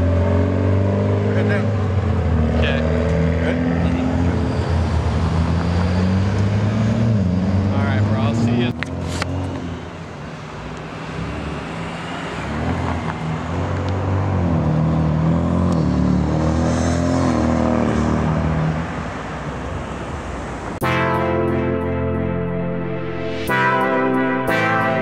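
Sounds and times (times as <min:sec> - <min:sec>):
music: 0:20.8 - 0:25.0.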